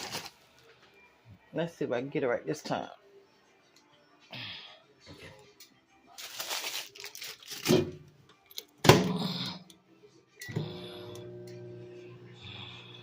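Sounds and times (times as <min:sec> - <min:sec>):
microwave humming: 0:10.4 - 0:13.0.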